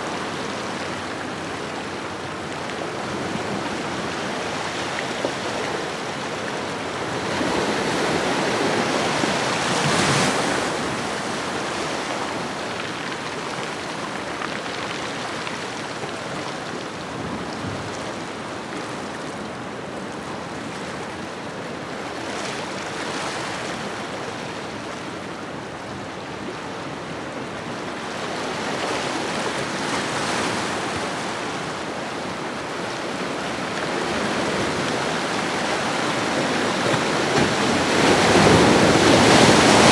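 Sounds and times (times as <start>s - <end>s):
ocean waves on shoreline: 28.5s - 39.9s.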